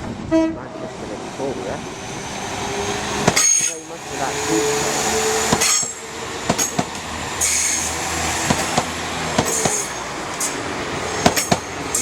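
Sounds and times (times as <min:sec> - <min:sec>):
train wheels clacking over rail joints: 0:03.0 - 0:12.0
high-pitched wheel squeals: 0:03.4 - 0:03.8.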